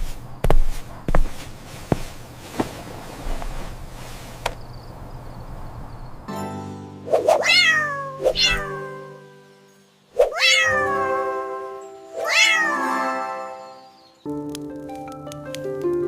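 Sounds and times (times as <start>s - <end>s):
soft background music: 6.3s - 16.0s
cat meowing: 7.4s - 9.2s, 10.3s - 11.0s, 12.2s - 12.8s.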